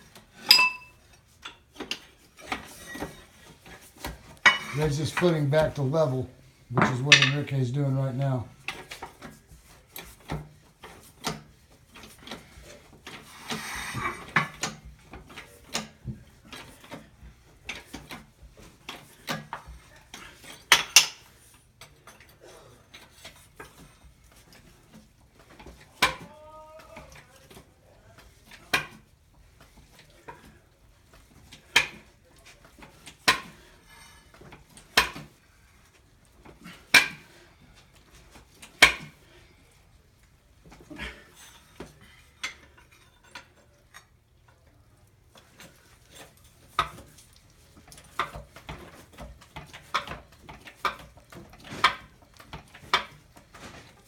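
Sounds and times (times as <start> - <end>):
metal clanks and knocks: 0.4 - 0.9, 4.4 - 5.8, 6.7 - 7.6.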